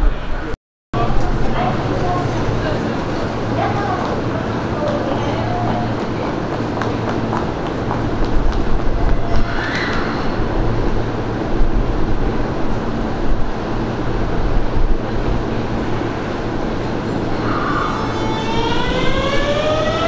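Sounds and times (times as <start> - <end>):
electric train hum: 0.0 - 20.0
brief squeal: 9.3 - 10.4.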